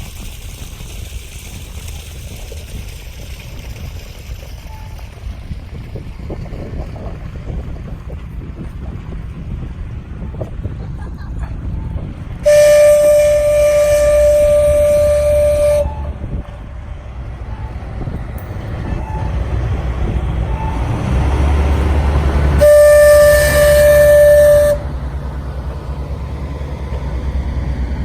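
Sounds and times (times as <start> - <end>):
train rumble: 0.0 - 28.0
steam locomotive whistle: 12.4 - 16.4, 22.4 - 25.1.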